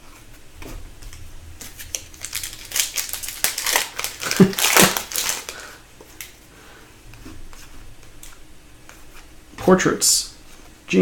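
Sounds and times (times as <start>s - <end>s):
foil wrapper crinkling: 1.7s - 6.4s.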